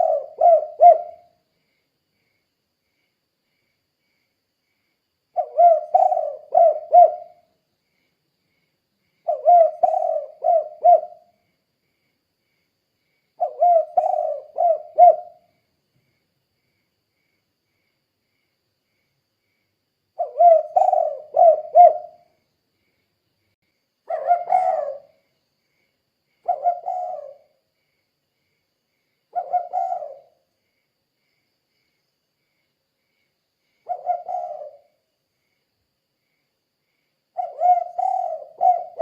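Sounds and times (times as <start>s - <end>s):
dove cooing: 0.0s - 1.4s, 5.4s - 7.4s, 9.2s - 11.3s, 13.4s - 15.5s, 20.2s - 22.3s, 24.1s - 25.2s, 26.4s - 27.6s, 29.4s - 30.4s, 33.9s - 34.9s, 37.4s - 39.0s.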